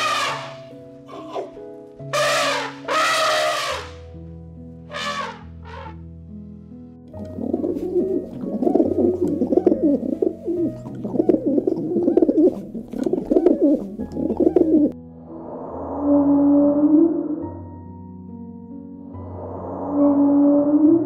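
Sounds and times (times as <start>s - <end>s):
dove cooing: 1.1s - 1.6s, 7.2s - 15.0s.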